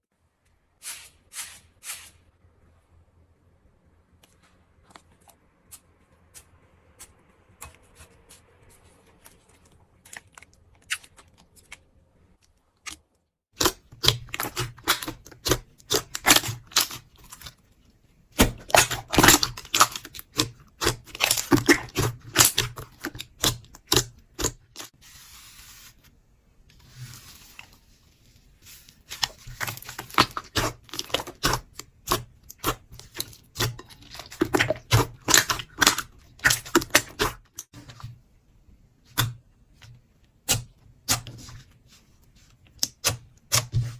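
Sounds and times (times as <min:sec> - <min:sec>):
slime crackling and popping: 0:18.4 - 0:24.9.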